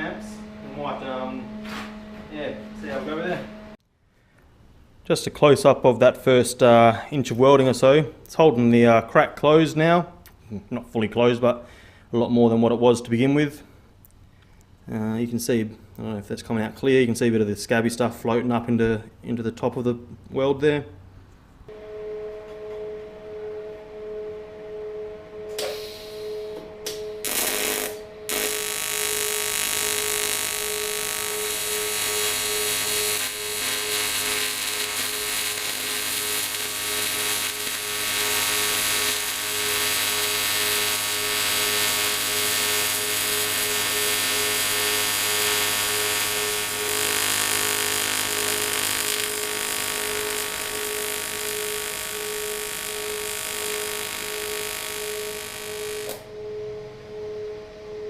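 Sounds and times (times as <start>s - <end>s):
welding arc buzzing hiss: 0.0s - 3.8s, 25.5s - 26.3s, 27.2s - 56.3s
welding machine hum: 0.0s - 3.8s, 27.2s - 56.3s.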